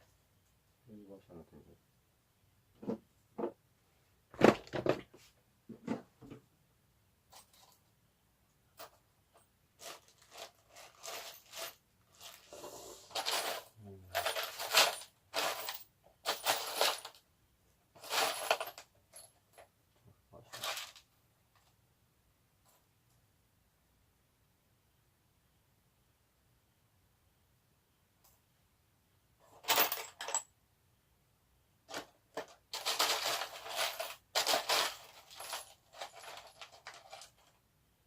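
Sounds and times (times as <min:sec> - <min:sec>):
metal washers and nuts clinking: 0:13.1 - 0:17.2, 0:18.0 - 0:19.7, 0:29.4 - 0:30.5, 0:31.9 - 0:37.6.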